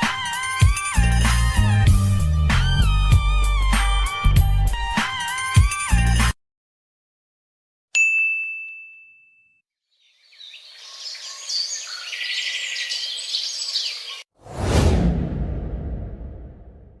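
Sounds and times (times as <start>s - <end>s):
bright bell-like ding: 8.0s - 9.6s
birds chirping: 9.9s - 14.3s
deep loud sound: 14.4s - 17.0s.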